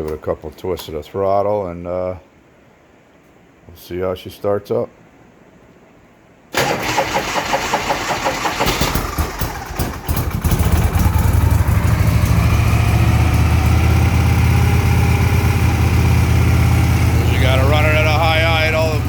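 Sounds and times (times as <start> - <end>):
starter motor cranking: 6.6 - 12.5
motorcycle engine running: 9.0 - 19.0.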